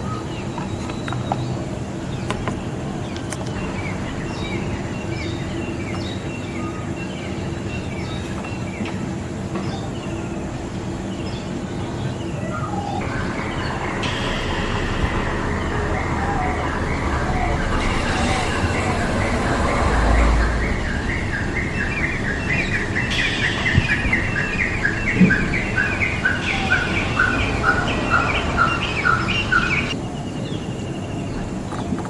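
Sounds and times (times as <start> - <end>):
steady background noise: 0.0 - 32.0
bird chirping in rapid series: 20.1 - 32.0.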